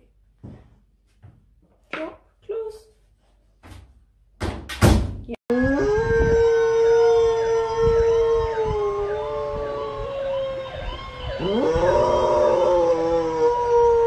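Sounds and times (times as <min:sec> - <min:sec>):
dog howling: 0:05.5 - 0:14.0.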